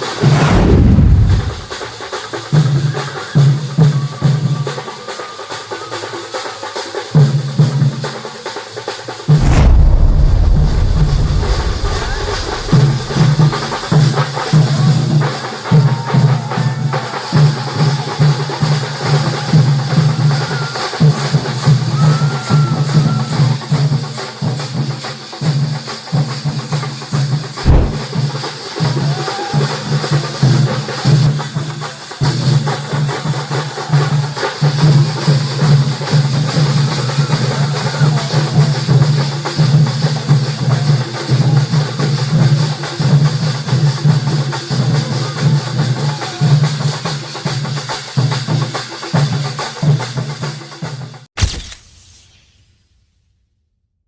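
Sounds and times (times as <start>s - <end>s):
heavy knock: 27.6s - 28.0s.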